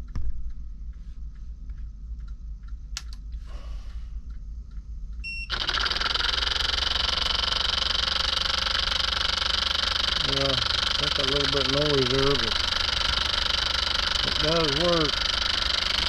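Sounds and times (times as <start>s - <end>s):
low hum: 0.0s - 16.0s
small motor whirring: 5.5s - 16.0s.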